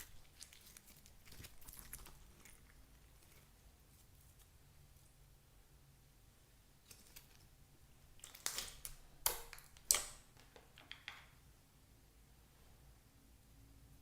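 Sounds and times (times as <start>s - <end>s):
slime crackling and popping: 0.0s - 3.5s, 8.2s - 10.2s.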